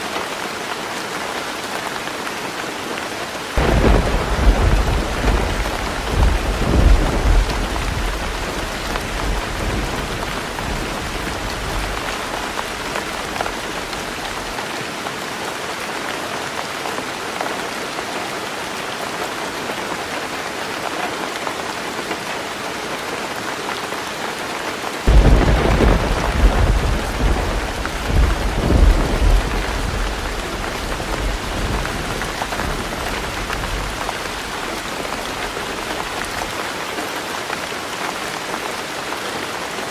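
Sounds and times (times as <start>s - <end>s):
heavy rain on a roof: 0.0s - 39.9s
thunder rumbling: 3.6s - 14.5s, 25.1s - 36.5s.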